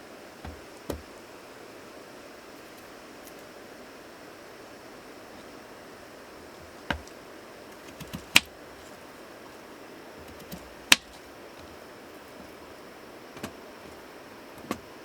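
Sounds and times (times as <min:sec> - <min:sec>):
steady hiss: 0:00.0 - 0:15.0
sharp clicks: 0:07.8 - 0:08.5, 0:10.3 - 0:11.2.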